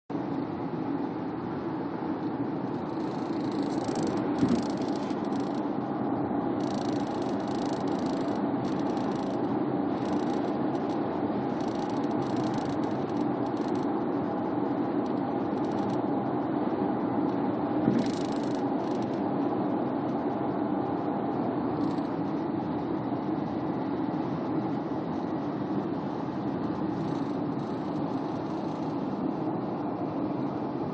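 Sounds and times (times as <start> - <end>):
car road noise: 0.1 - 30.9
high-pitched sunroof rattle: 0.3 - 30.9.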